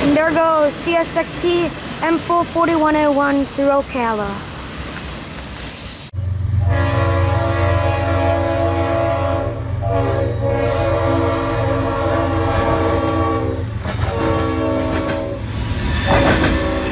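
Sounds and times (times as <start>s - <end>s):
locomotive air horn blasts: 6.6s - 15.4s.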